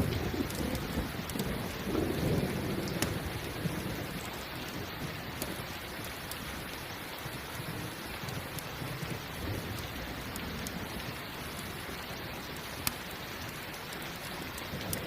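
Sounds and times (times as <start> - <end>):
low thunder rumble: 0.0 - 6.0
steady rain: 0.0 - 15.0.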